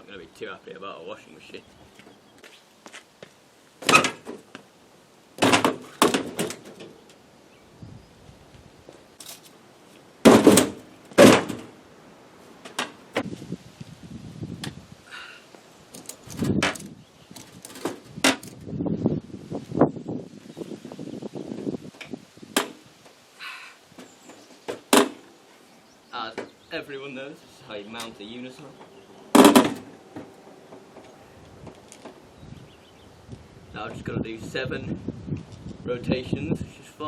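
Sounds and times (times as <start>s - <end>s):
heavy objects knocking and thudding: 5.4s - 7.0s, 10.2s - 11.8s, 16.0s - 18.6s, 24.0s - 25.3s, 29.3s - 32.2s
quiet rattling: 15.9s - 18.6s.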